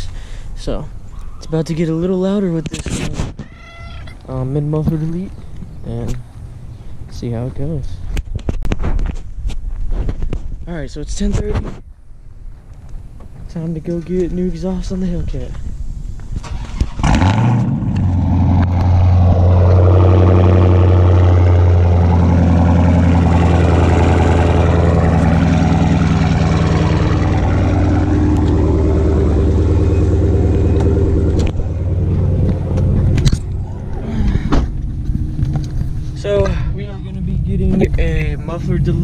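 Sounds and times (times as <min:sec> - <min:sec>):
car engine starting and idling: 0:16.4 - 0:39.0.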